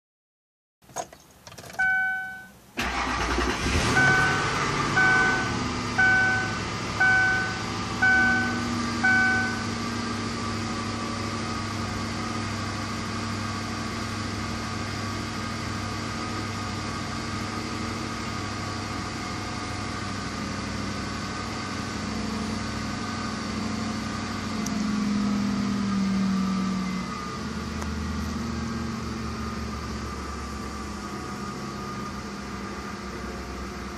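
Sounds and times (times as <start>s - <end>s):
car warning chime dings: 1.7s - 3.2s, 3.9s - 9.7s
car engine fast idling: 2.8s - 25.9s.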